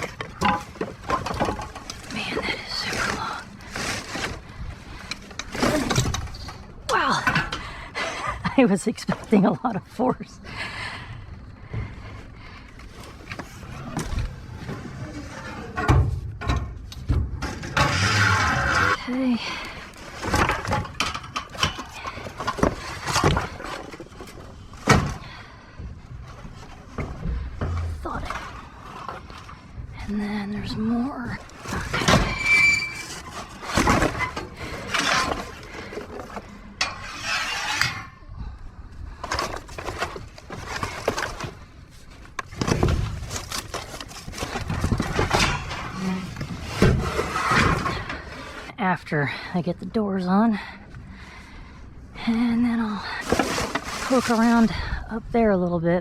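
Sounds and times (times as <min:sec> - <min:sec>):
debris clattering in a dumpster: 0:00.0 - 0:07.8, 0:13.0 - 0:29.9, 0:31.2 - 0:37.1, 0:39.2 - 0:48.6, 0:53.0 - 0:54.9.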